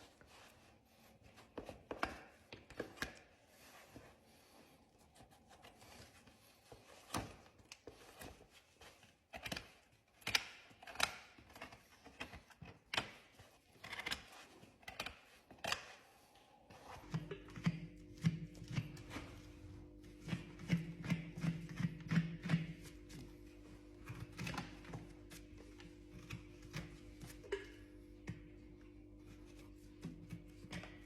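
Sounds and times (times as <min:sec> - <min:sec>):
tools cutting and scraping hoof: 0:05.2 - 0:16.1, 0:16.7 - 0:27.4.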